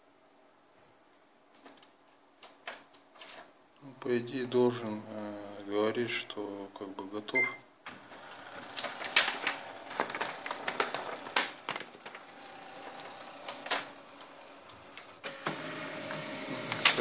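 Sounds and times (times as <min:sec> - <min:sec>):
printer parts clicking and rattling: 0:07.9 - 0:15.1.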